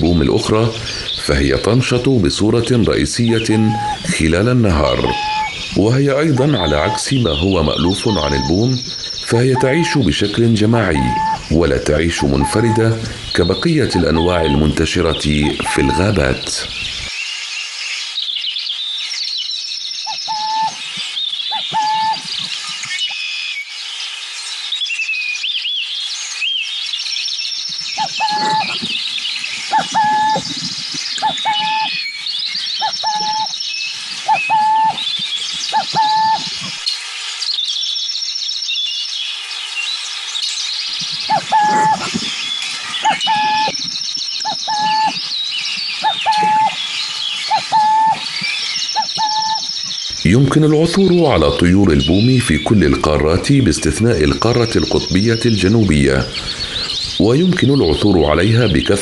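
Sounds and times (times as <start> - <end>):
repeated short bird call: 0.0 - 17.2, 20.0 - 23.2, 27.6 - 37.6, 40.9 - 51.4
chatter of bird chirps and trills: 0.0 - 23.2, 24.0 - 59.0.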